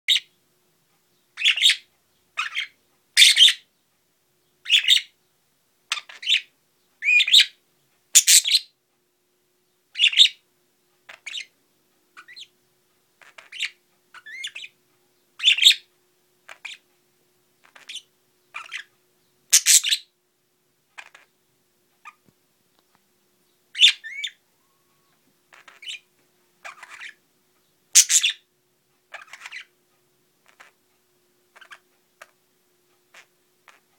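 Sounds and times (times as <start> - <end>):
budgerigars chirping and warbling: 1.4 - 3.7, 4.6 - 5.2, 5.9 - 7.6, 8.2 - 8.7, 9.9 - 10.4, 11.1 - 11.6, 12.2 - 12.6, 13.2 - 14.8, 15.4 - 16.9, 17.6 - 18.9, 19.5 - 20.1, 21.0 - 21.4, 23.7 - 27.2, 28.0 - 28.4, 29.1 - 29.8, 30.4 - 30.8, 31.5 - 32.4, 33.1 - 33.9.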